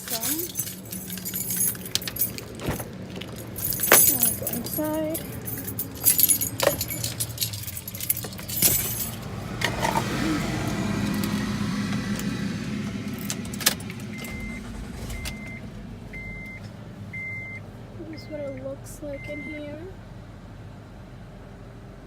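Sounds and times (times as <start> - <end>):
rattling and clicking: 0.0 - 12.3
low hum inside van: 0.0 - 22.0.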